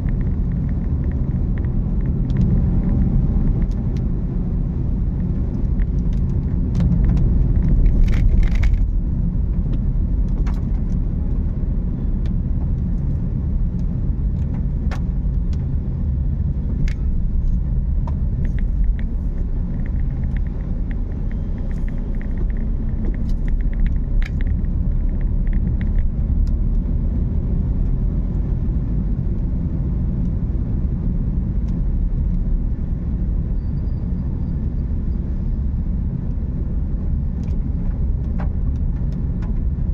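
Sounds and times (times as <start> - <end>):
car road and engine rumble: 0.0 - 39.9
light clicks and taps: 16.8 - 26.9.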